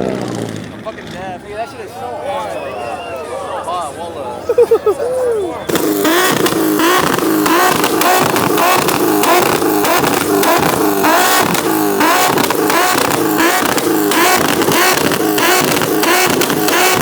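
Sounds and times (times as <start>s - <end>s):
car engines revving hard: 0.0s - 2.1s, 5.6s - 17.0s.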